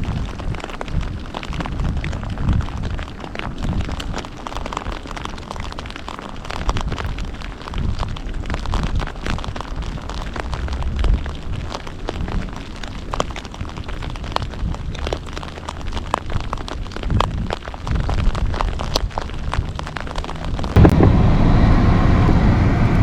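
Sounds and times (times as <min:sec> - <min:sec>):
raindrops clicking near microphone: 0:00.0 - 0:21.1
heavy rain falling: 0:00.0 - 0:23.0
low rumble: 0:07.9 - 0:13.8, 0:17.2 - 0:23.0.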